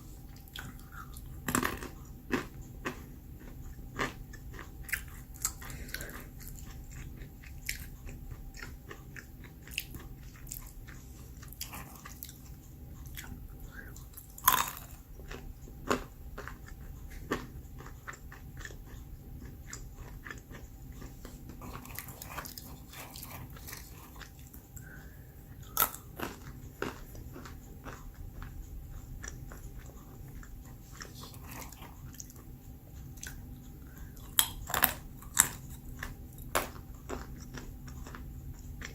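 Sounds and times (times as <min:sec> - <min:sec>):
almonds being chewed: 0:00.0 - 0:38.9.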